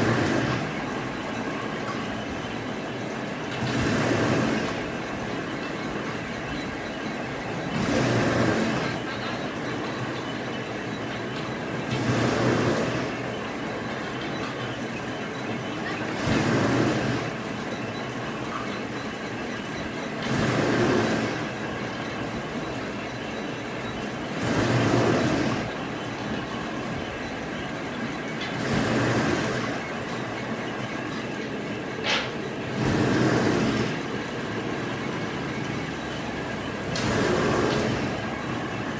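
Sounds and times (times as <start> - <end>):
machinery running: 0.0 - 38.9.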